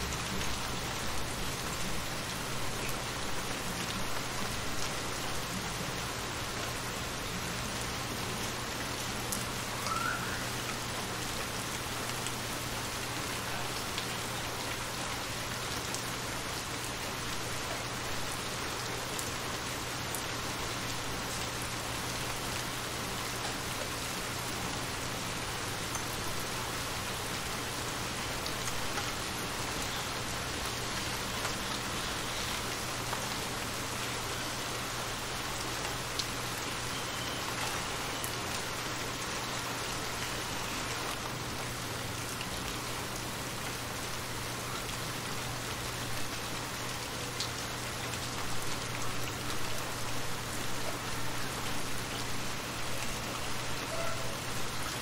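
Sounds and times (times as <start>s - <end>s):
rain falling on water: 0.0s - 55.0s.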